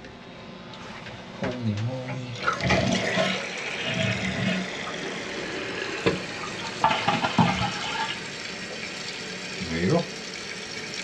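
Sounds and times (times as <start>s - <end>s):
water running into toilet tank: 2.3s - 11.0s.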